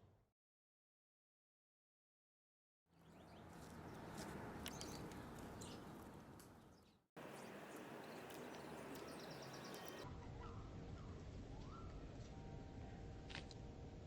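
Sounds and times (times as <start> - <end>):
faint outdoor ambience: 2.9 - 14.0.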